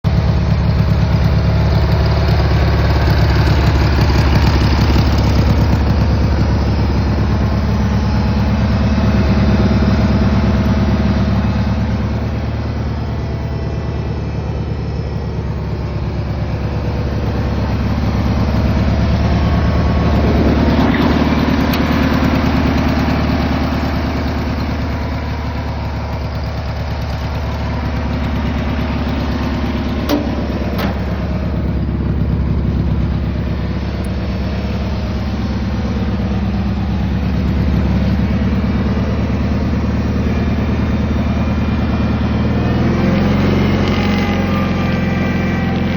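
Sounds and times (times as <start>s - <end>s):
garden tractor engine running: 0.0s - 45.9s.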